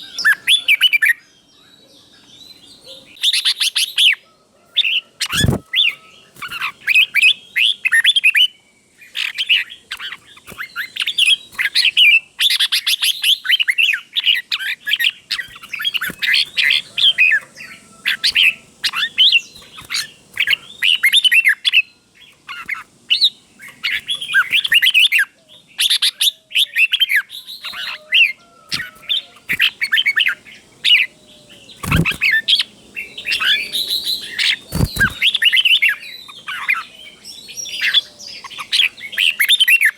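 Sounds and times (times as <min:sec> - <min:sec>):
bird warbling song: 0:00.0 - 0:39.9
dull thump: 0:05.3 - 0:05.7.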